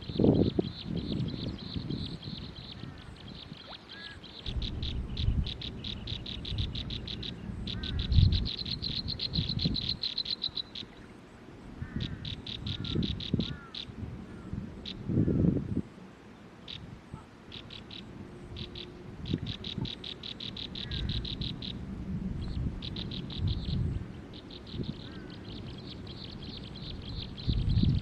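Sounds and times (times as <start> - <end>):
small birds chirping: 0.0 - 11.2, 11.8 - 15.5, 17.5 - 21.8, 22.4 - 28.0.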